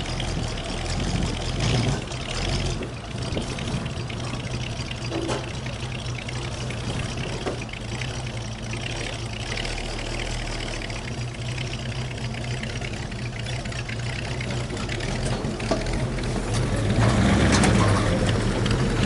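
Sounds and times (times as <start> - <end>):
heavy engine humming: 0.0 - 19.0
wind noise: 3.2 - 4.2.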